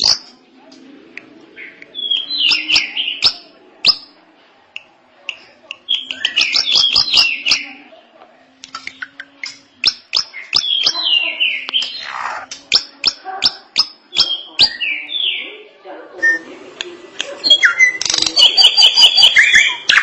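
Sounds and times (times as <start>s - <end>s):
bird song with clicks and whistles: 1.6s - 4.1s, 4.8s - 7.7s, 8.6s - 15.4s, 17.4s - 20.0s.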